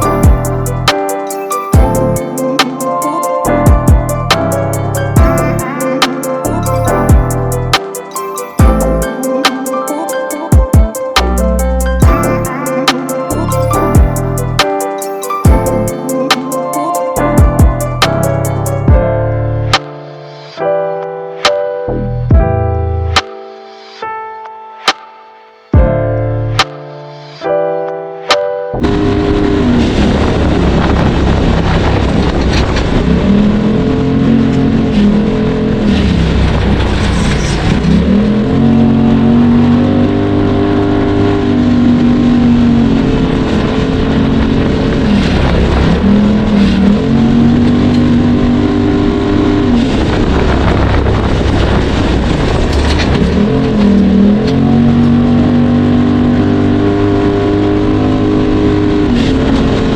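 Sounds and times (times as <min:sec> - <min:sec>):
off-road vehicle engine revving: 0:32.8 - 0:59.9.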